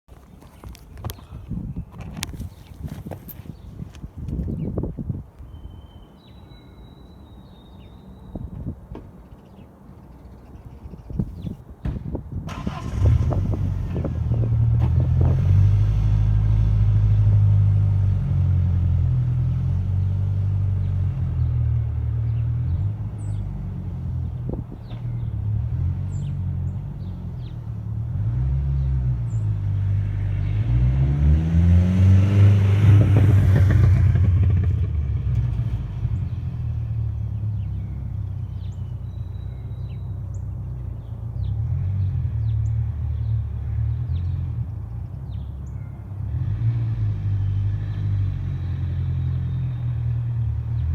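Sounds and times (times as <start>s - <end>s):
car engine idling and revving: 12.5s - 50.9s.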